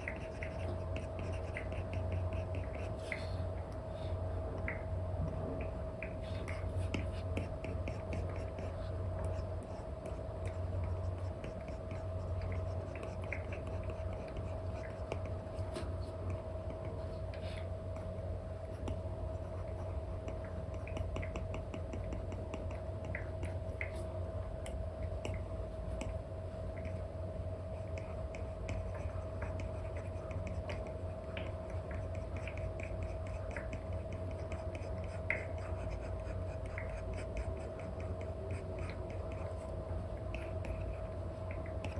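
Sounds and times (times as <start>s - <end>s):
stylus tapping and scratching on screen: 0.0s - 3.3s, 4.6s - 27.0s, 27.7s - 41.9s
steady hum: 0.0s - 41.9s.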